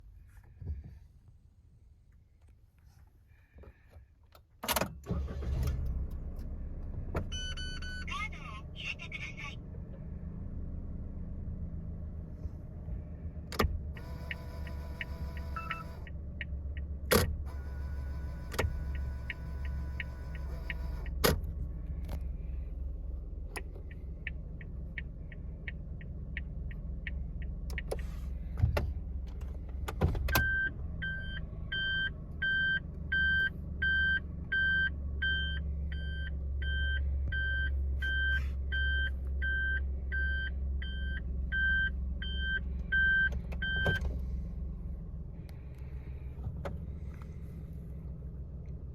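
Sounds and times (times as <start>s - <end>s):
reverse warning beeps: 7.3s - 8.2s, 15.0s - 16.0s, 30.4s - 44.0s
car engine idling: 8.0s - 48.9s
turn signal relay ticking: 13.5s - 21.4s, 23.5s - 28.0s.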